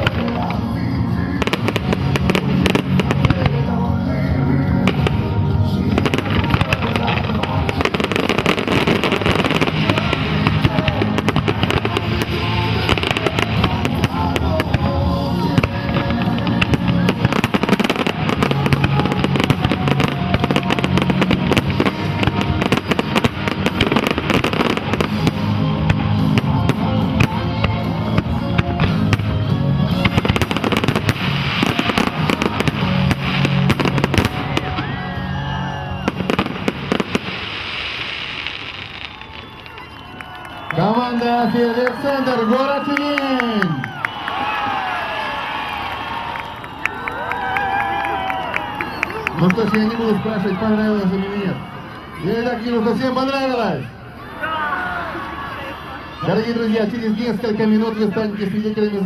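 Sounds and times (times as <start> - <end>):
fireworks bangs and crackles: 0.0 - 43.7.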